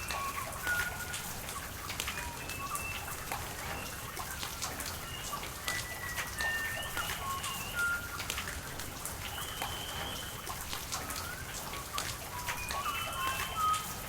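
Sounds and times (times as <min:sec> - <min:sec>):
steady rain falling: 0:00.0 - 0:14.0
bird whistled calls: 0:05.0 - 0:08.2, 0:09.2 - 0:13.9.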